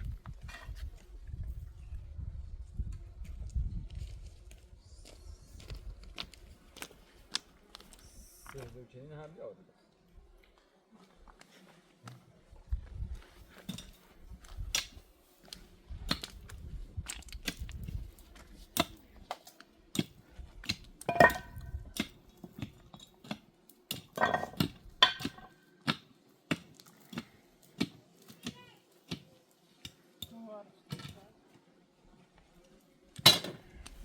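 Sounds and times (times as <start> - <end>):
hard objects clicking and knocking: 21.0 - 22.7, 23.9 - 26.0.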